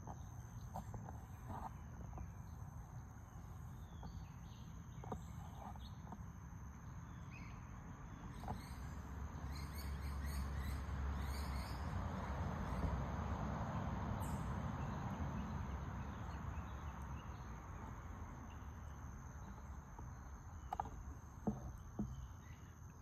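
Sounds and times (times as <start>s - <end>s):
birds chirping: 14.2s - 23.0s.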